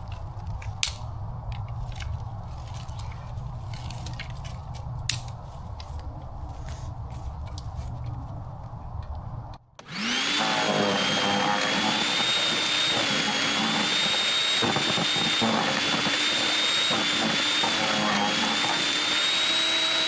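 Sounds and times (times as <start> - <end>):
wood chipper whining: 9.8 - 20.0.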